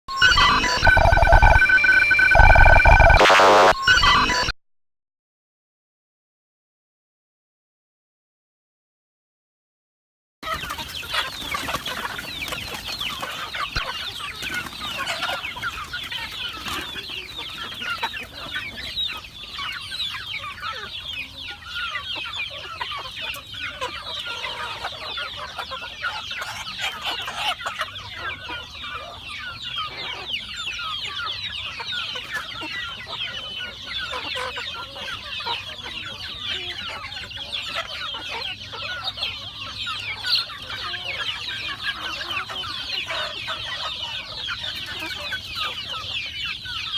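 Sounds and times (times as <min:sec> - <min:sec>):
chickens clucking: 0:10.4 - 0:46.9.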